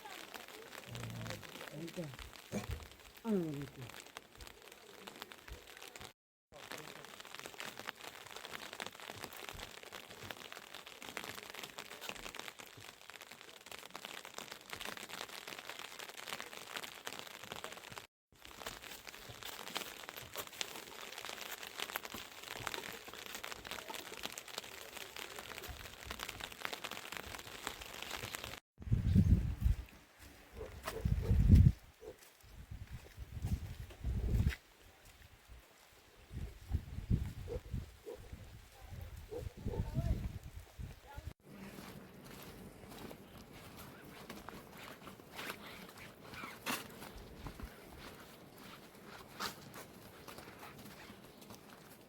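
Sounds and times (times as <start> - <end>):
heavy rain pattering: 0.0 - 28.6.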